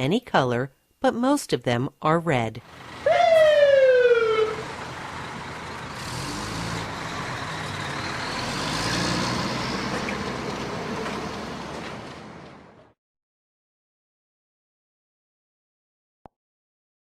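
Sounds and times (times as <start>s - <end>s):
vehicle rumble: 2.6s - 13.0s
siren blast sliding down: 3.0s - 5.2s.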